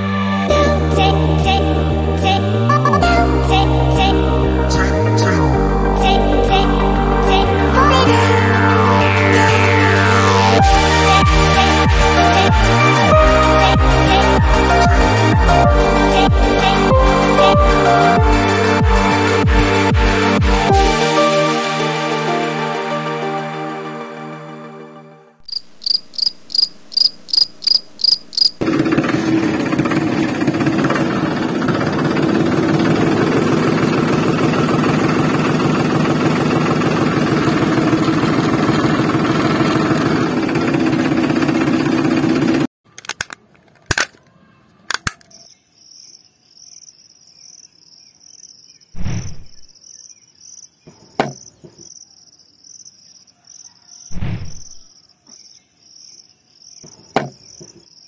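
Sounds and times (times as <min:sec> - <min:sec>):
crickets chirping: 0:25.5 - 0:28.6, 0:45.3 - 0:48.9, 0:49.7 - 0:58.0
fast mechanical rattle: 0:28.6 - 0:42.7
knocks of bricks handled: 0:50.9 - 0:51.8, 0:56.8 - 0:57.8.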